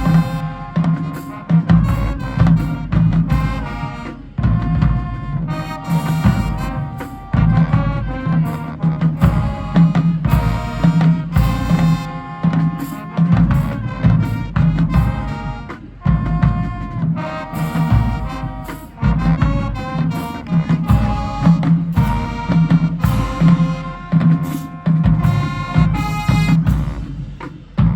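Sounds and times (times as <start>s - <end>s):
drum and cymbal hits: 0.0s - 27.9s
marching band playing: 0.0s - 27.9s.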